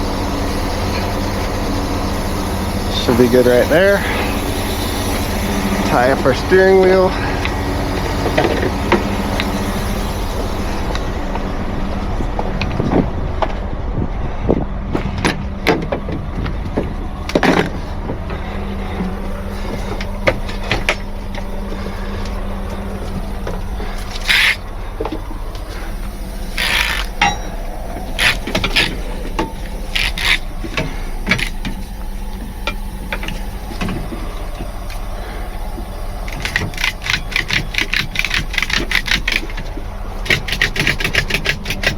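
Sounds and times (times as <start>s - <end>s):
air hiss bursts: 0.0s - 12.0s, 18.4s - 41.8s
truck engine idling: 0.0s - 41.9s.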